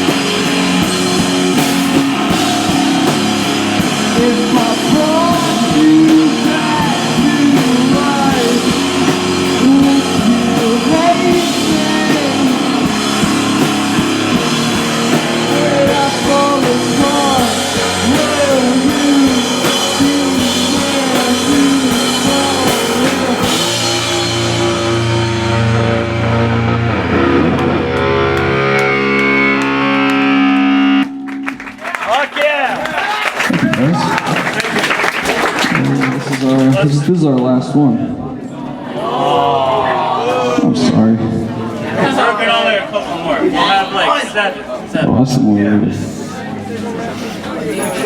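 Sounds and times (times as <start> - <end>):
person singing: 0.0 - 25.6
live rock band playing: 0.0 - 31.8.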